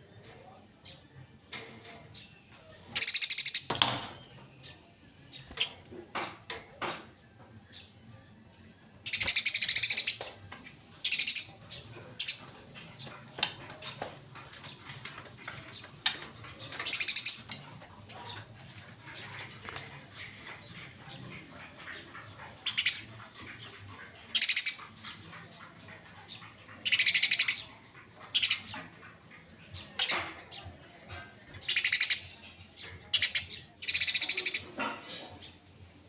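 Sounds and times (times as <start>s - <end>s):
sparrows chirping: 0.0s - 36.0s
fast chattering rattles: 9.0s - 10.3s, 10.9s - 34.9s.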